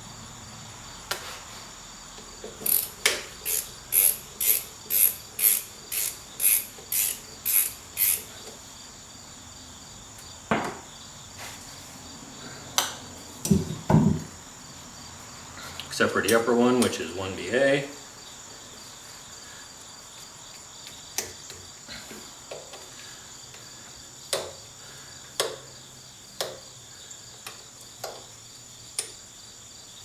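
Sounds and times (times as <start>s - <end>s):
socket ratchet rasping: 2.6s - 8.4s.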